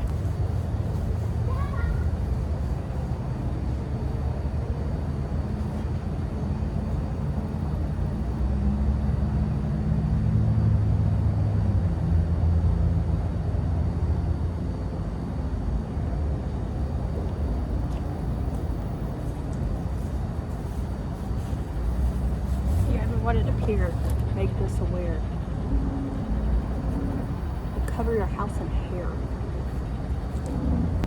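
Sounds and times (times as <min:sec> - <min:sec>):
low engine rumble: 0:00.0 - 0:31.0.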